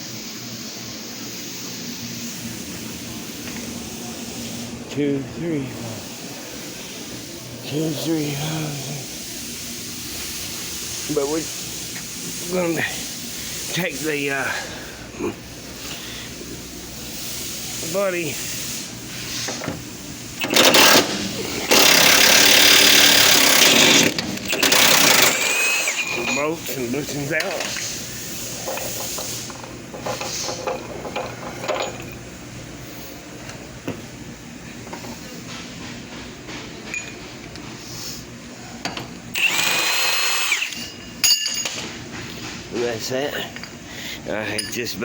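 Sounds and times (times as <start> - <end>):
impact wrench hammering: 20.4 - 26.5
power tool high whine: 20.4 - 26.6, 39.3 - 40.9.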